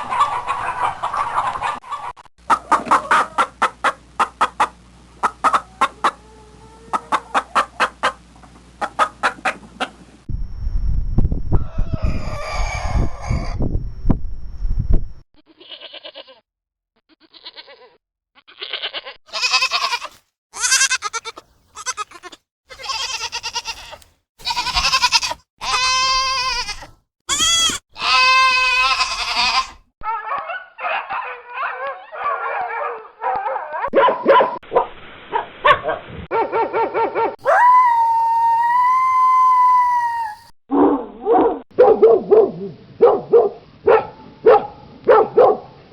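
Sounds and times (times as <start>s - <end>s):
goats bleating: 15.5s - 16.4s, 17.1s - 29.8s.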